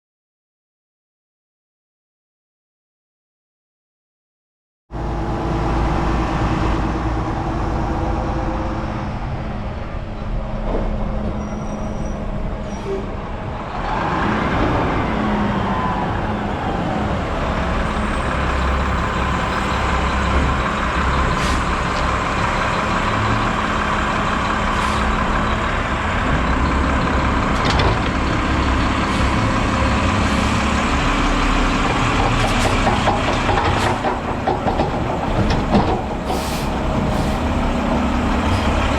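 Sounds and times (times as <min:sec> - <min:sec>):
garbage truck engine and hydraulics: 0:05.0 - 0:38.9.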